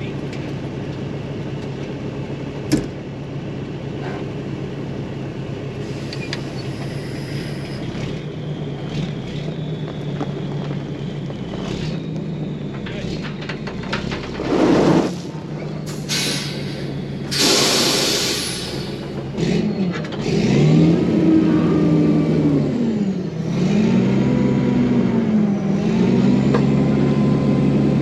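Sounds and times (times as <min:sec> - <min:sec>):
diesel truck engine running: 0:00.0 - 0:28.0
short hiss: 0:15.9 - 0:19.0.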